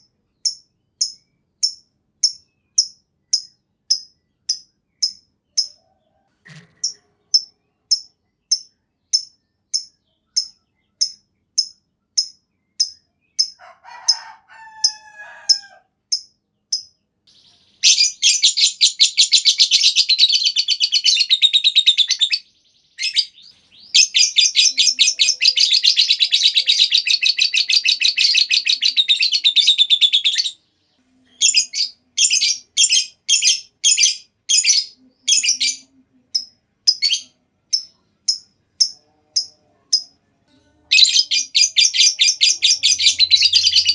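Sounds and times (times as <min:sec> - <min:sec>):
lovebird chirping and trilling: 0:00.4 - 0:05.8, 0:06.5 - 0:30.6, 0:31.3 - 0:40.2, 0:40.9 - 0:43.9.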